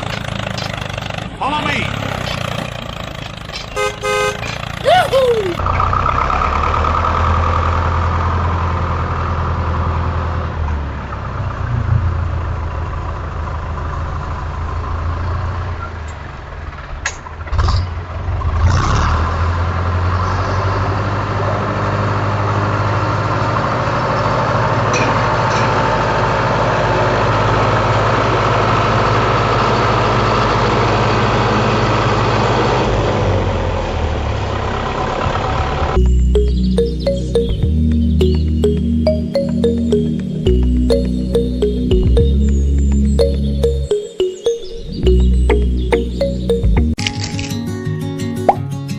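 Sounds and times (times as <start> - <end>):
tractor engine idling: 0.0 - 8.8.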